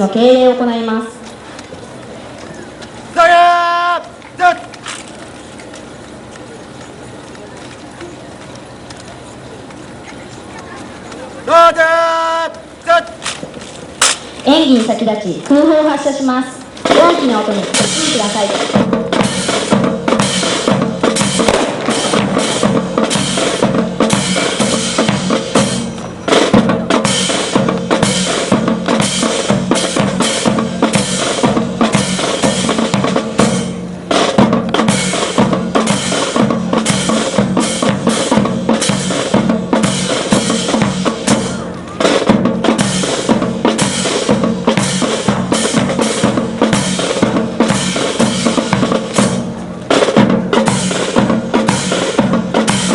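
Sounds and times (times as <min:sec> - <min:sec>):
marching band music: 0:02.0 - 0:07.2, 0:10.7 - 0:52.9
snare and bass drum cadence: 0:16.8 - 0:52.9.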